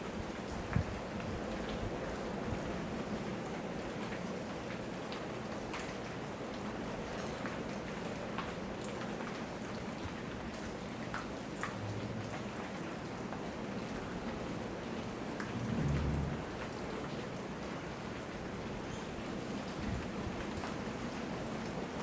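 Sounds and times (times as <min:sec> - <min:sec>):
raindrops ticking on a surface: 0:00.0 - 0:22.0
steady rain: 0:00.0 - 0:22.0
low rumble: 0:15.5 - 0:16.8.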